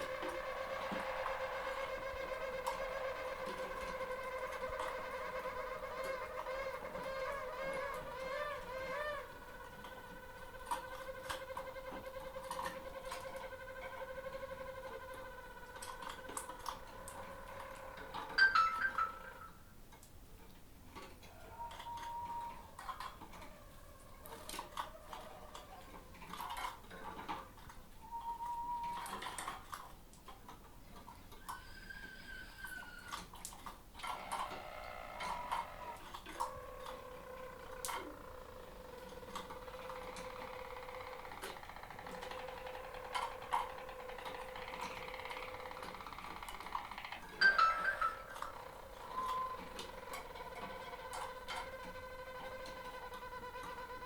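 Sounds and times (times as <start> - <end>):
canary singing: 0.0 - 19.7, 34.2 - 54.0.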